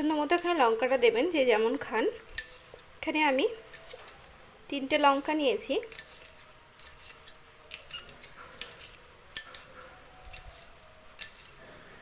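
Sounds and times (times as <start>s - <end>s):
knife cutting chillies: 0.0s - 2.8s, 4.9s - 11.7s.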